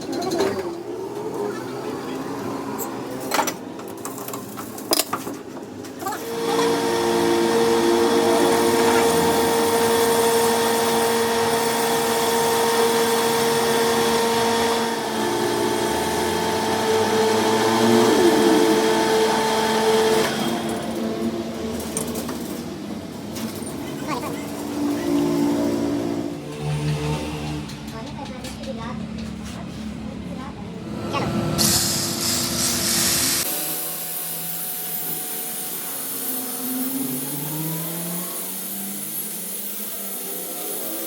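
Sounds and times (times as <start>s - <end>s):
electric power tool running: 5.9s - 27.8s, 30.8s - 41.0s.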